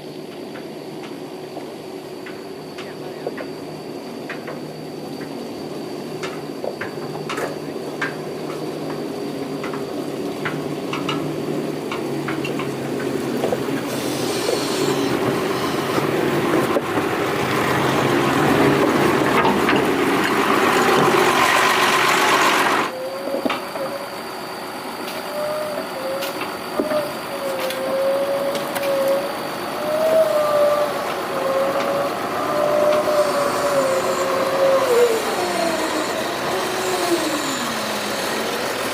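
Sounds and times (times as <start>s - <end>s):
excavator engine and hydraulics: 0.0s - 38.9s
wavering whine: 0.0s - 38.9s.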